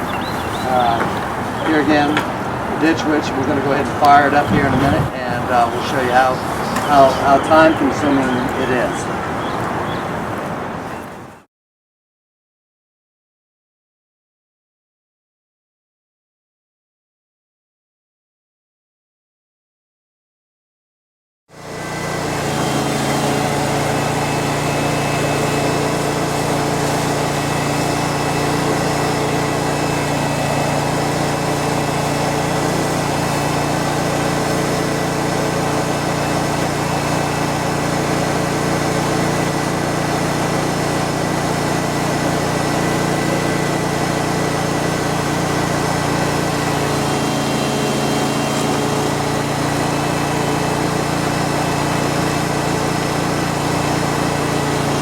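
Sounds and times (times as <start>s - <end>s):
vacuum excavator machine hum: 0.0s - 11.4s, 21.6s - 55.0s.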